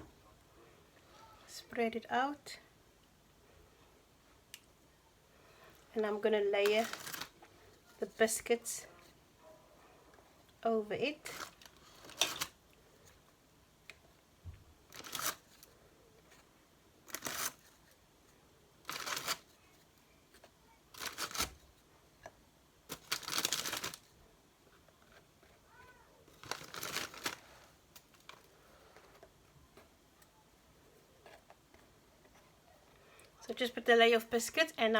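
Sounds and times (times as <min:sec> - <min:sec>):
plastic packet crinkling: 0:06.6 - 0:07.4, 0:11.2 - 0:12.6, 0:14.9 - 0:15.7, 0:17.1 - 0:17.7, 0:18.9 - 0:19.5, 0:21.0 - 0:21.6, 0:22.9 - 0:24.1, 0:26.3 - 0:28.5.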